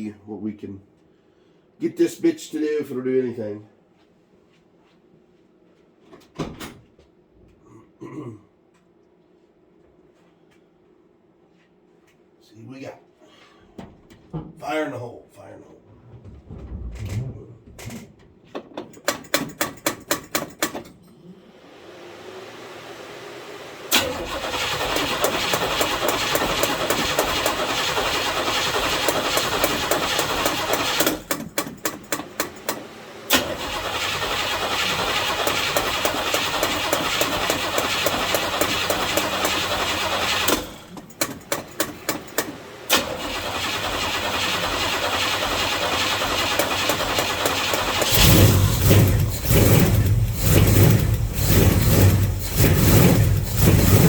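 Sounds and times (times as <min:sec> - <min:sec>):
car engine running loud and uneven: 0:21.5 - 0:31.2, 0:32.5 - 0:41.0, 0:41.9 - 0:54.0
car engine cranking on starter: 0:22.1 - 0:54.0.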